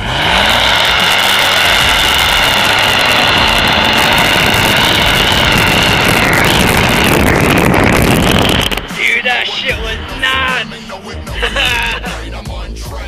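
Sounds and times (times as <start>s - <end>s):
tires squealing: 0.0s - 12.3s
engine revving high: 0.0s - 12.8s.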